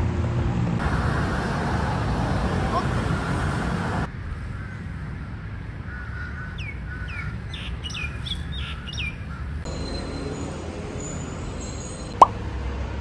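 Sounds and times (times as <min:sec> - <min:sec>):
bird chirping: 0:06.4 - 0:12.3.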